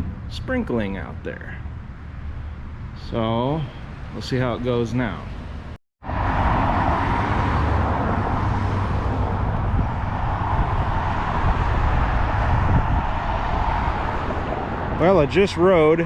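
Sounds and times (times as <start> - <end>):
road noise rushing: 0.0 - 16.0
wind buffeting microphone: 6.1 - 16.0.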